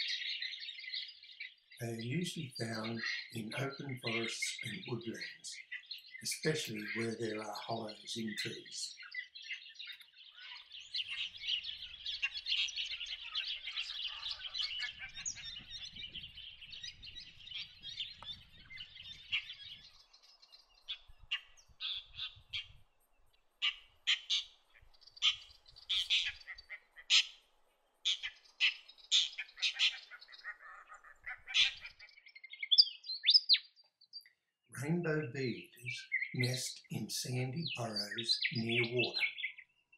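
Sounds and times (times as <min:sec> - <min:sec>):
short sharp bird calls: 0:00.0 - 0:20.1, 0:23.6 - 0:33.7
birds harsh chattering: 0:00.0 - 0:23.0, 0:23.6 - 0:33.9, 0:34.8 - 0:39.9.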